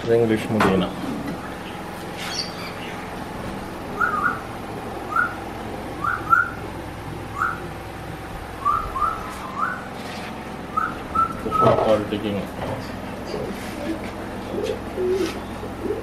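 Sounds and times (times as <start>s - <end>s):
steady low hum: 0.0s - 16.0s
bird whistled calls: 2.2s - 3.0s, 4.0s - 4.4s, 5.1s - 5.4s, 6.0s - 6.6s, 7.3s - 7.6s, 8.6s - 9.9s, 10.7s - 11.8s.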